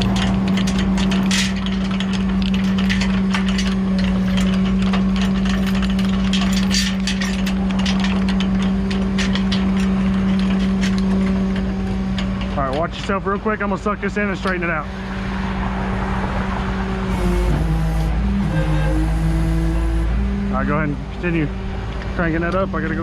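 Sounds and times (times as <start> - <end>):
jack cranking clicks and rattles: 0.0 - 14.7, 17.1 - 20.1
diesel engine humming: 0.0 - 23.0.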